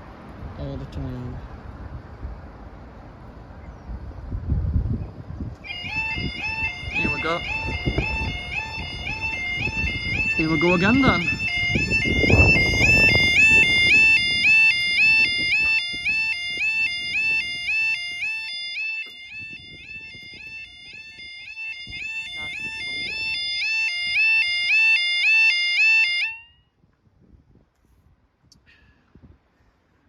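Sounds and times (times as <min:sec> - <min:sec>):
level crossing alarm wailing: 0:05.6 - 0:26.6.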